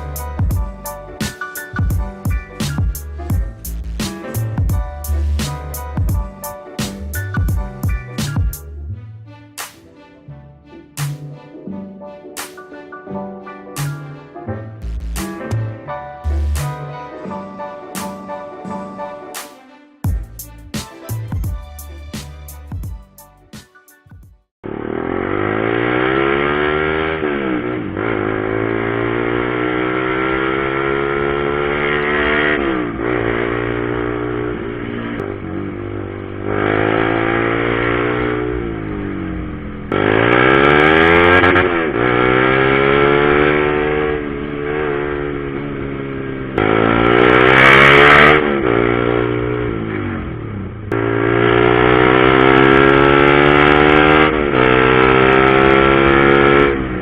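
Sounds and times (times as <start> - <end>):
motorcycle engine accelerating: 0.0 - 8.6, 24.6 - 57.0.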